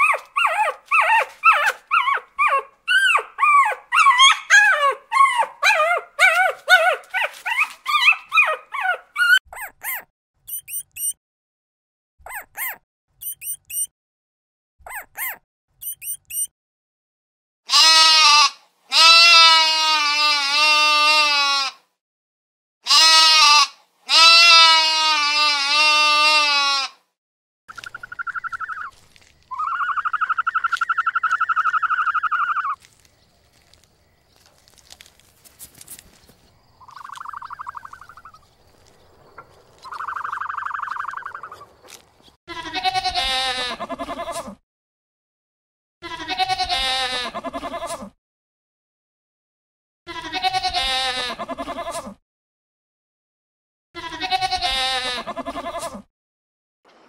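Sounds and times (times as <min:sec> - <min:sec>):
goat bleating: 0:17.7 - 0:21.8, 0:22.8 - 0:27.0, 0:42.5 - 0:44.6, 0:46.0 - 0:48.1, 0:50.1 - 0:52.2, 0:54.0 - 0:56.1
short high animal calls: 0:27.7 - 0:32.8
long wavering animal calls: 0:27.7 - 0:32.9, 0:36.8 - 0:38.5, 0:39.4 - 0:42.0.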